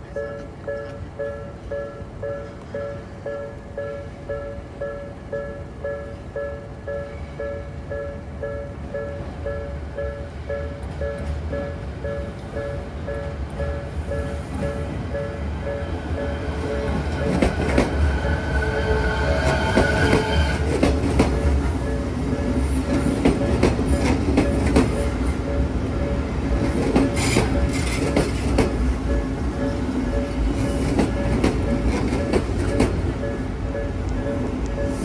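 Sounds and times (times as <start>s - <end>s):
level crossing alarm bell: 0.1s - 19.8s, 21.2s - 35.0s
train wheels clattering over rail joints: 16.9s - 18.5s, 19.4s - 29.3s, 30.2s - 33.2s.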